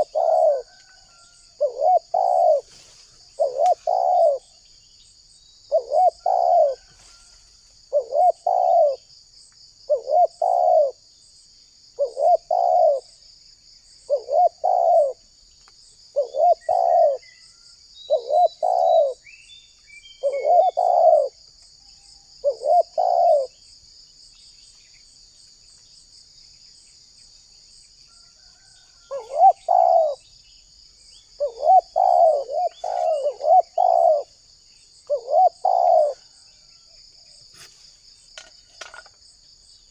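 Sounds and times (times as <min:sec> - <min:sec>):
dove cooing: 0:00.0 - 0:04.6, 0:05.7 - 0:07.2, 0:07.9 - 0:09.1, 0:09.9 - 0:11.0, 0:12.0 - 0:13.1, 0:14.1 - 0:15.2, 0:16.1 - 0:17.3, 0:18.1 - 0:19.2, 0:20.2 - 0:21.5, 0:22.4 - 0:23.6, 0:29.0 - 0:30.2, 0:31.4 - 0:34.4, 0:35.0 - 0:36.4
insect drone: 0:00.0 - 0:39.9.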